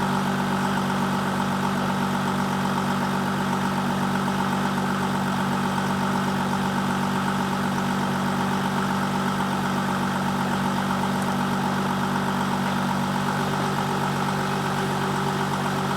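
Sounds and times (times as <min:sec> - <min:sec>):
diesel car engine idling: 0:00.0 - 0:15.9.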